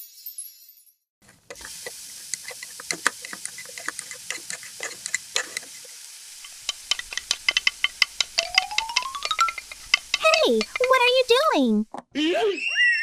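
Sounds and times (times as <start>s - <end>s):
plastic toy pieces clicking: 6.4s - 11.5s.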